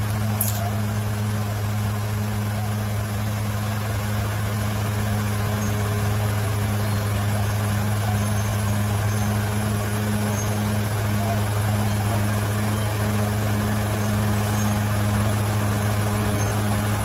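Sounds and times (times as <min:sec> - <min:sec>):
bulldozer diesel engine droning: 0:00.0 - 0:17.0.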